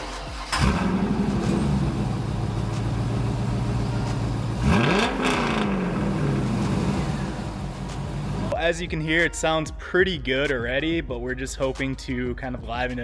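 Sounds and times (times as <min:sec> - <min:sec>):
car engine starting and idling: 0:00.0 - 0:08.5
engine revving: 0:00.3 - 0:08.5.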